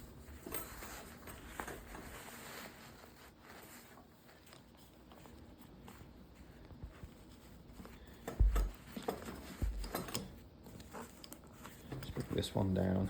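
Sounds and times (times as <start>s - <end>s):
rubbing and handling: 0.0s - 13.0s
dull thumps: 8.2s - 10.0s.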